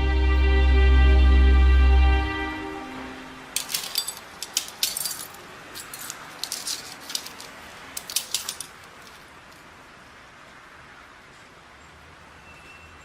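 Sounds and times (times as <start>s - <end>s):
light sharp clicks and jingles: 3.6s - 9.7s.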